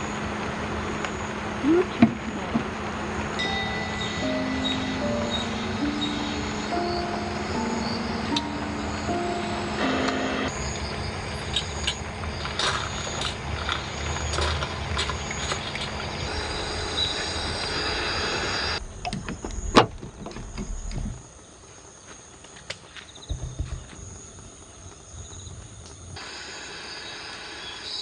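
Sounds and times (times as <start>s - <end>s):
brief low rumble: 18.8s - 21.2s, 23.3s - 24.3s.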